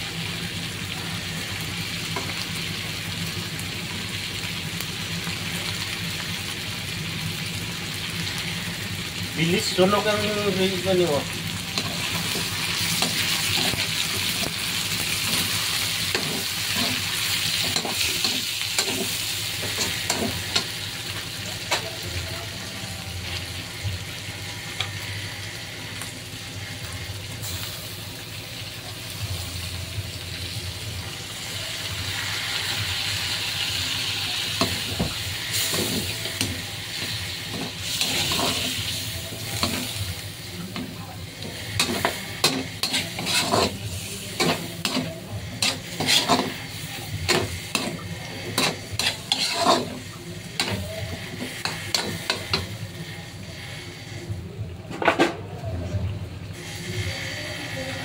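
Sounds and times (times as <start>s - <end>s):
chicken sizzling in a pan: 0.0s - 54.7s, 56.5s - 58.0s
utensil scraping a pan: 41.5s - 50.0s.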